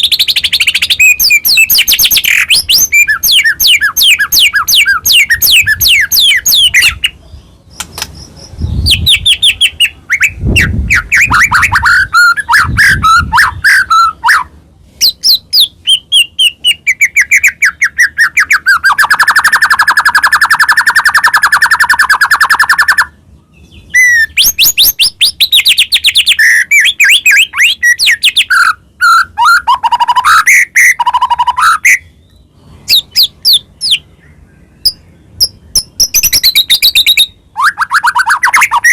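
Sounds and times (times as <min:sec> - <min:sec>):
bird singing trills and whistles: 0:00.0 - 0:38.9.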